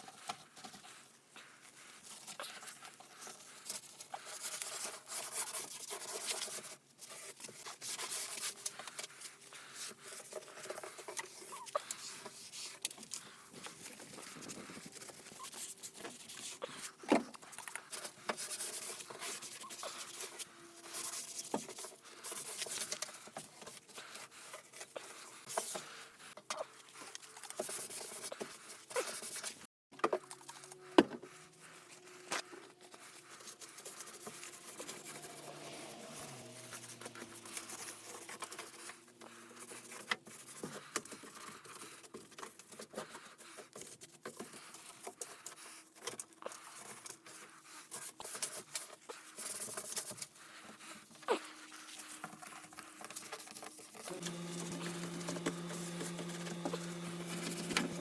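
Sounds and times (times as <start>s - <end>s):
rustling and scraping: 0.0s - 58.0s.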